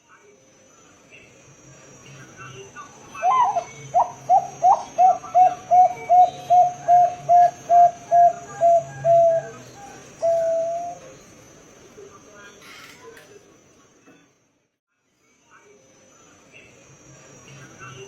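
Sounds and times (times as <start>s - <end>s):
dove cooing song: 3.2s - 11.2s.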